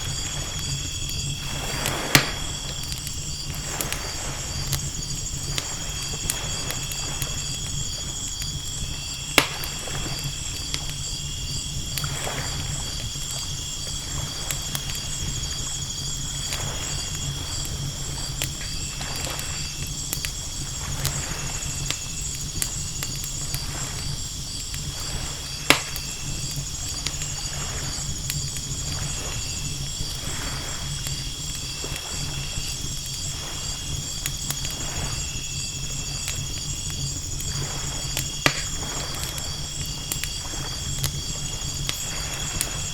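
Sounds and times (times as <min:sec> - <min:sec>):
ocean waves washing in: 0:00.0 - 0:07.5
campfire crackling: 0:00.0 - 0:42.9
campfire pops: 0:00.0 - 0:42.9
insects chirping: 0:00.0 - 0:42.9.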